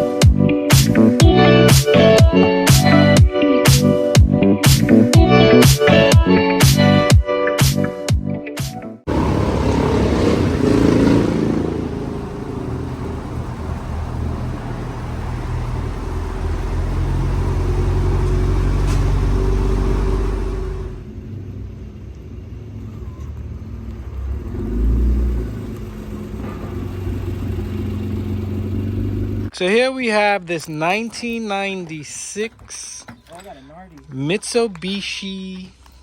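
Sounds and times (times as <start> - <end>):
car engine running: 9.1 - 21.1.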